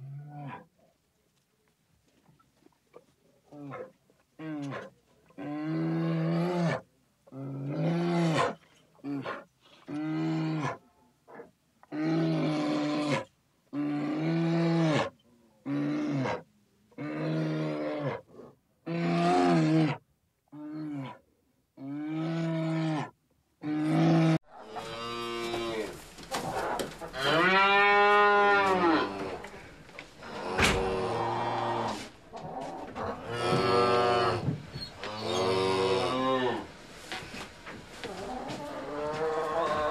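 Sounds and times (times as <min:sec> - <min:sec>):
steady background noise: 0:24.5 - 0:39.9
cattle mooing: 0:26.6 - 0:36.7.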